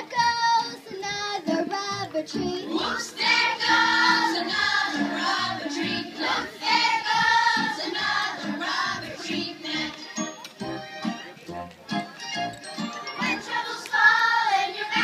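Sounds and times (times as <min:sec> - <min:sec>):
musical accompaniment: 0:00.0 - 0:15.0
chorus of high voices singing: 0:02.4 - 0:10.0, 0:13.2 - 0:15.0.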